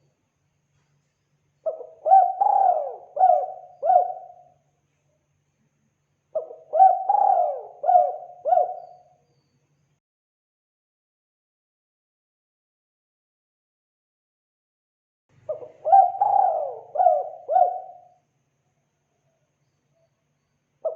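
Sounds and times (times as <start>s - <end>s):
dove cooing: 1.6s - 4.5s, 6.4s - 9.1s, 15.5s - 18.1s.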